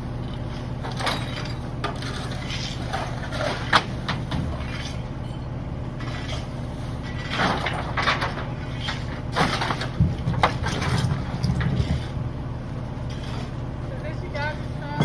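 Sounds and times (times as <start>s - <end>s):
garbage truck packer crushing debris: 7.0s - 13.5s.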